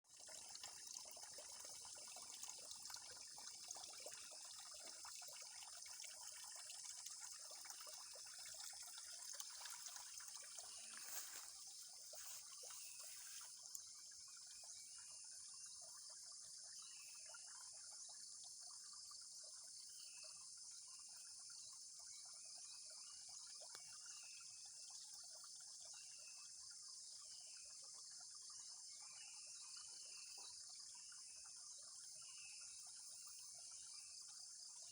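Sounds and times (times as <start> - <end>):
water trickling: 0.0 - 34.9
insects droning: 3.0 - 34.9.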